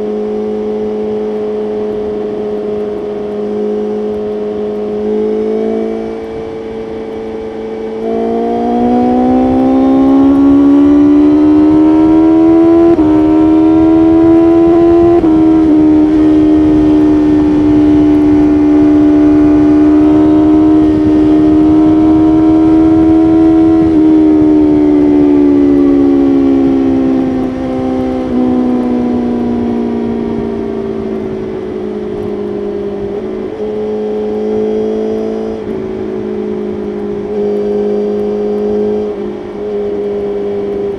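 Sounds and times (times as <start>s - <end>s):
motorcycle engine accelerating: 0.0s - 40.9s
wind rush: 5.8s - 33.6s.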